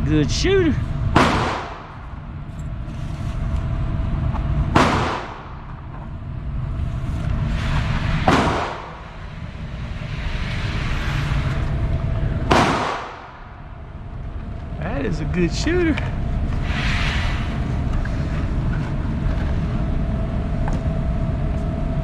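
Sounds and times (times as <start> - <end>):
steady low rumble: 0.0 - 22.0
pistol shots: 1.2 - 2.0, 4.7 - 5.6, 8.3 - 9.0, 12.5 - 13.4.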